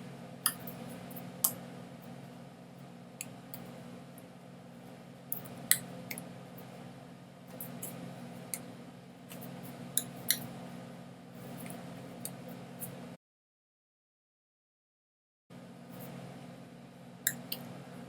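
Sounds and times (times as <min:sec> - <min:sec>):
steady low hum: 0:00.0 - 0:13.2, 0:15.5 - 0:18.0.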